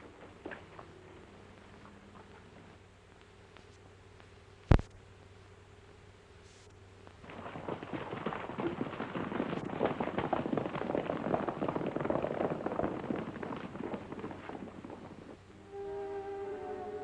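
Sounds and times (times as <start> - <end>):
horses galloping hoofbeats: 0.0 - 2.7, 7.1 - 15.6.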